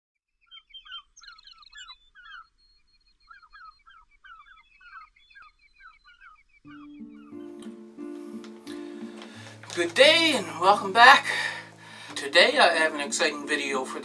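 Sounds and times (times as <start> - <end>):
small birds chirping and singing: 0.3 - 9.4.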